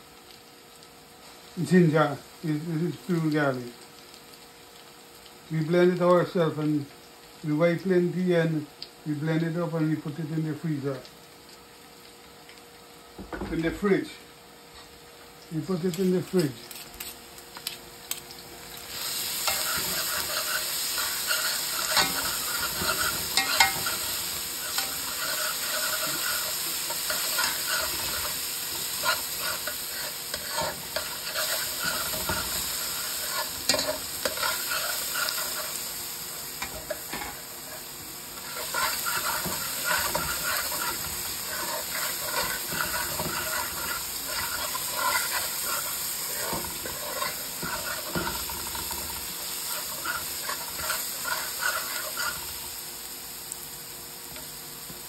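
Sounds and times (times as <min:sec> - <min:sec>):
onion sizzling in oil: 0:00.0 - 0:55.0
metal spoon scraping pan: 0:19.4 - 0:35.8, 0:36.6 - 0:49.0, 0:49.6 - 0:52.4.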